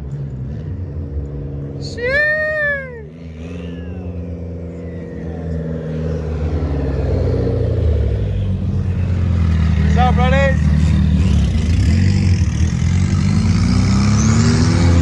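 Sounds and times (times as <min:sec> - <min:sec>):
car engine running: 0:00.0 - 0:14.9
high-pitched rising falling call: 0:02.1 - 0:07.0.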